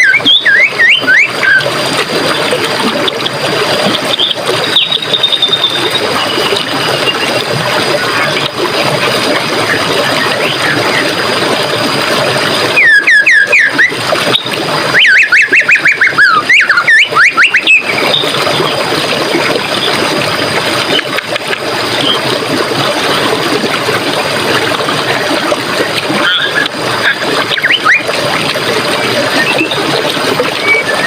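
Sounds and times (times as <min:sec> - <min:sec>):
stream water running: 0:00.0 - 0:31.0.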